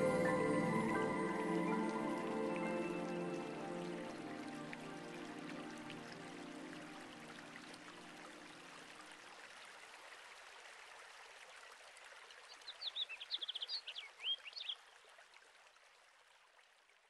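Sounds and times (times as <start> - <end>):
music: 0.0 - 8.4
flowing water: 0.0 - 17.0
songbird chirping: 12.5 - 14.9.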